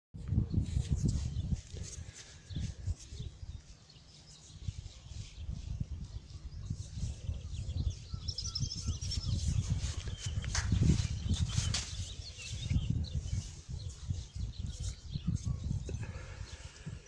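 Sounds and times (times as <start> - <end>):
small birds chirping: 0.3 - 17.0.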